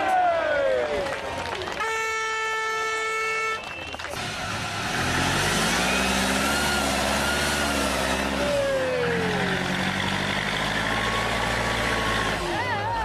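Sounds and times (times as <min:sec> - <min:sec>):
diesel truck engine running: 0:03.1 - 0:13.0.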